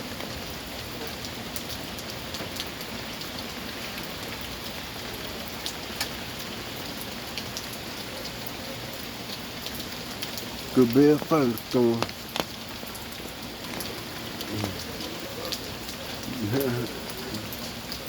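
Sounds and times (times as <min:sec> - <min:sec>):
rain pattering: 0:00.0 - 0:18.0
sharp drip ticks: 0:05.4 - 0:18.0.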